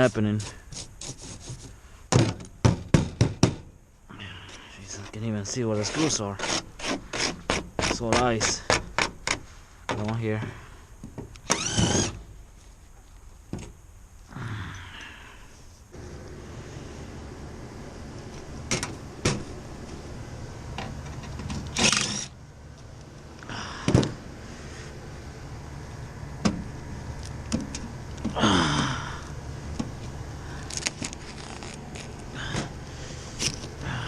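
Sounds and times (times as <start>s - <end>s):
sharp knocks: 2.1s - 3.7s
low hum: 11.6s - 34.0s.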